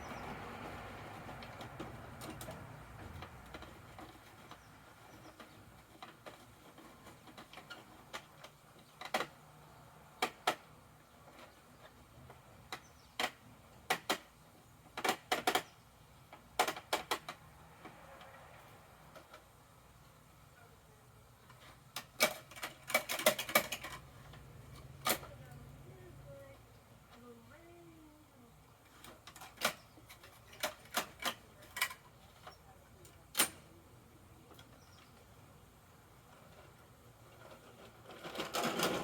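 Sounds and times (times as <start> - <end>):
plastic toy truck parts clicking: 14.9 - 15.7, 16.3 - 18.4, 21.5 - 25.6, 28.9 - 32.6.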